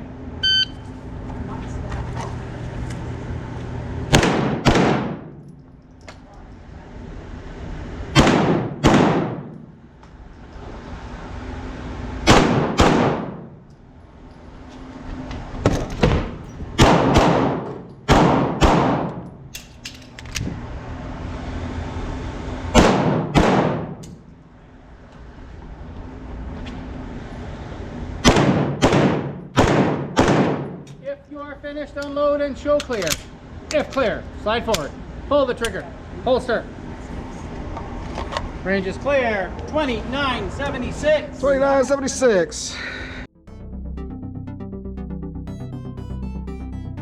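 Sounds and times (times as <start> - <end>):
pistol shots: 4.1 - 5.4, 8.2 - 9.6, 12.3 - 13.5, 16.8 - 19.7, 22.8 - 24.1, 28.2 - 30.8.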